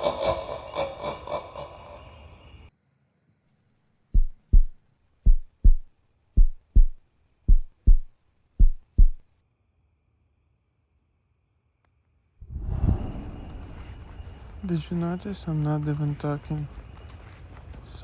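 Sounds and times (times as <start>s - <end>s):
heartbeat double thumps: 4.2s - 9.2s.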